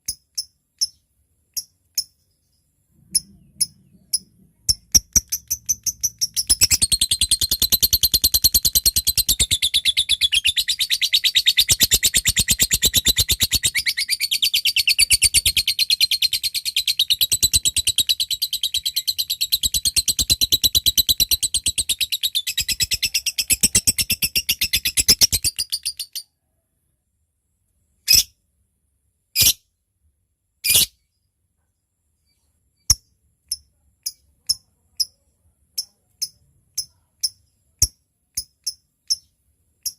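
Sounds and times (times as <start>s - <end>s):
sharp ticking bird notes: 0.0s - 26.2s, 35.8s - 39.9s
lovebird chattering trill: 3.1s - 26.2s.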